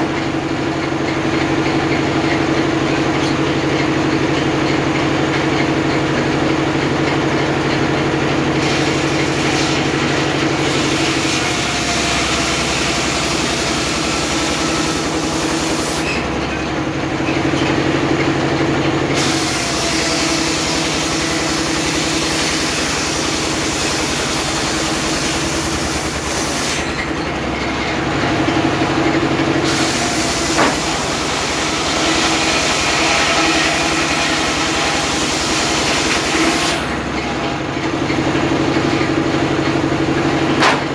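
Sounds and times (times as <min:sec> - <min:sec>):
circular saw cutting wood: 0:08.4 - 0:16.4, 0:19.1 - 0:40.9
sharp click: 0:40.6 - 0:40.9.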